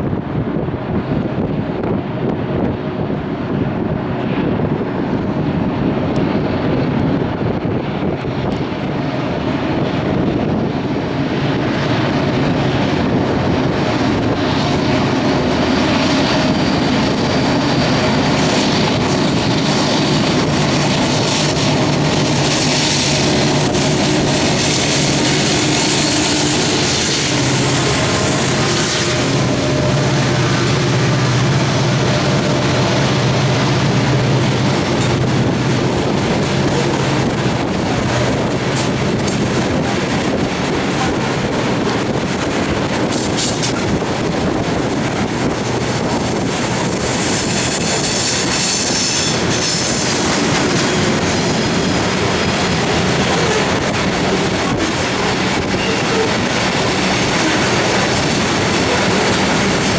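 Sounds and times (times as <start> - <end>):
train wheels rumbling on rails: 0.0 - 59.9
low engine drone: 15.0 - 46.2
high wheel squeal: 46.0 - 59.9.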